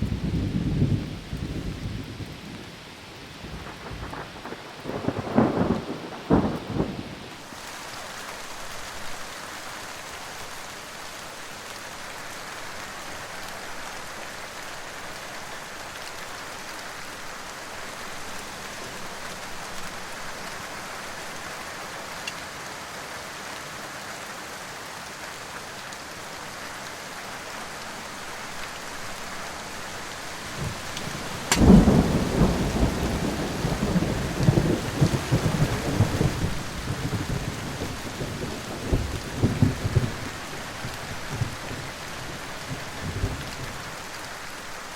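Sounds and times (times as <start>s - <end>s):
thunder crack and rumble: 0.0s - 2.5s, 3.5s - 7.2s, 30.6s - 41.6s
rain hiss: 0.0s - 44.9s.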